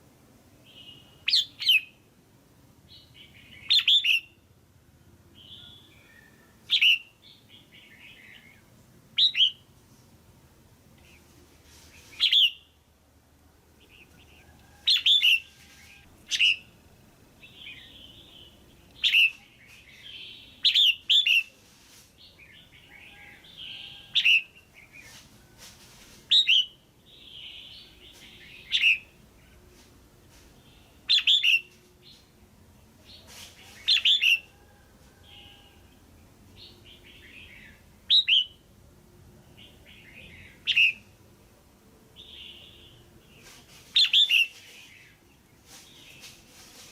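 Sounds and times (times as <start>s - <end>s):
bird calling with sharp notes: 0.7s - 2.0s, 2.9s - 4.4s, 5.4s - 8.6s, 9.2s - 9.7s, 12.0s - 12.8s, 13.8s - 16.8s, 17.4s - 21.6s, 26.3s - 29.2s, 30.7s - 32.2s, 36.6s - 38.6s, 39.6s - 41.1s, 43.9s - 45.1s.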